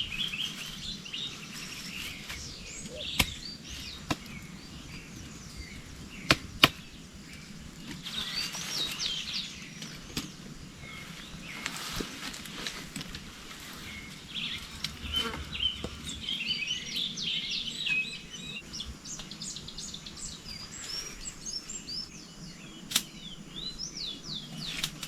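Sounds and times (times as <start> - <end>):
wild birds chirping: 0.0 - 25.0.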